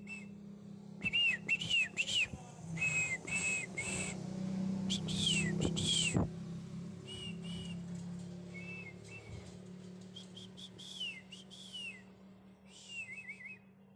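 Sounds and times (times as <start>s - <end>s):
birds whistling calls: 0.0s - 0.4s, 1.0s - 4.2s, 4.8s - 6.3s, 7.0s - 7.9s, 8.5s - 9.5s, 10.1s - 12.1s, 12.7s - 13.6s
steady low hum: 0.0s - 7.9s.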